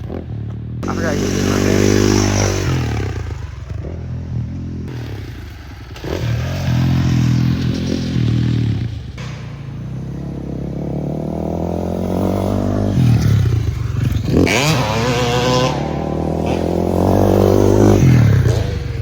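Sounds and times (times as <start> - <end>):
off-road vehicle engine revving: 0.0 - 19.0.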